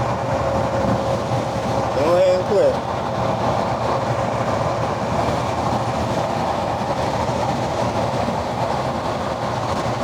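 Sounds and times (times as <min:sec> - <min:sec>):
road and wind noise: 0:00.0 - 0:10.0.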